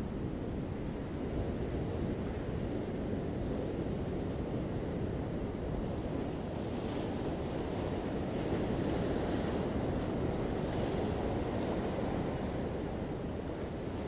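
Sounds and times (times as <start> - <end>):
ocean waves washing onto beach: 0.0 - 14.0.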